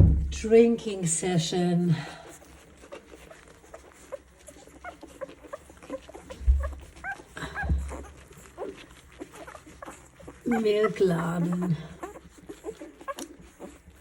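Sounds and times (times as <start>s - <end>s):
low thumps: 0.0s - 0.7s, 6.4s - 8.2s
puppies squeaking and whimpering: 0.7s - 14.0s.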